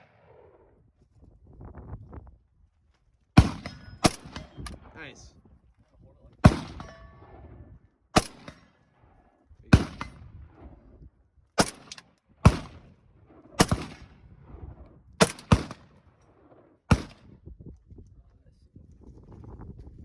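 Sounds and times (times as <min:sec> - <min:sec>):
rifle shots with echo: 0:00.0 - 0:00.7, 0:03.4 - 0:05.1, 0:06.4 - 0:11.0, 0:11.6 - 0:17.3.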